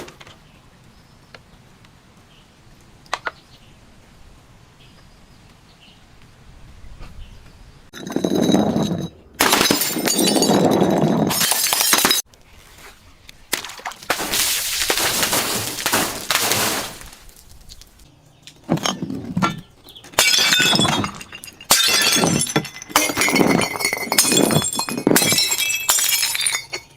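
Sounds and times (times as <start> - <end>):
glass shards clinking: 8.0 - 12.2, 18.8 - 26.9
glass shattering and crunching: 8.0 - 12.3, 13.5 - 18.0, 18.8 - 26.9.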